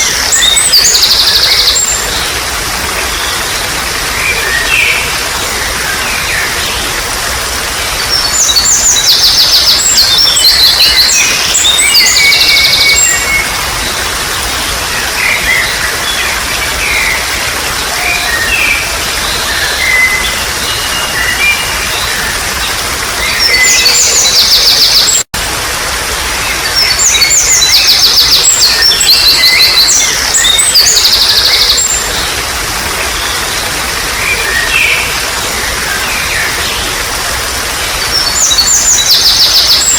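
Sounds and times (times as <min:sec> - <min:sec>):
songbirds chirping and trilling: 0:00.0 - 0:25.3
babbling water: 0:00.0 - 0:39.9.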